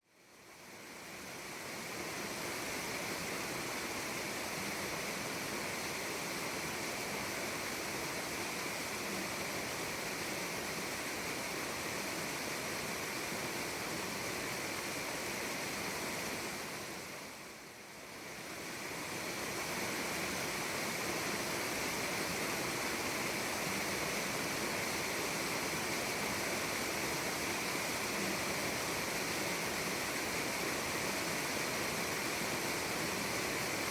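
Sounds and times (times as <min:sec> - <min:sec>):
stream rushing over rocks: 0:00.2 - 0:33.9.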